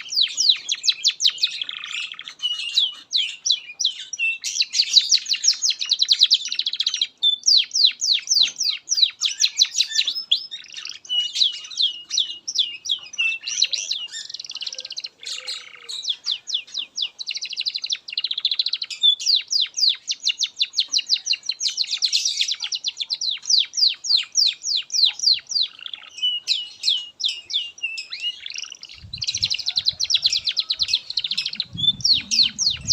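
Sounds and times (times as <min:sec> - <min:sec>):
canary singing trills: 0:00.0 - 0:32.9
low rumble: 0:30.8 - 0:32.9.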